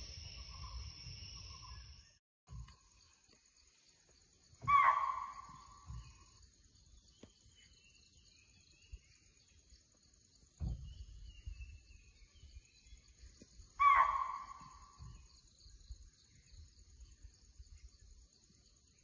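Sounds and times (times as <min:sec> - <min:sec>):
high insect drone: 0:00.0 - 0:02.2
faint bird chirps: 0:00.0 - 0:19.0
low thump: 0:10.6 - 0:11.1
loud bird call: 0:13.8 - 0:15.0.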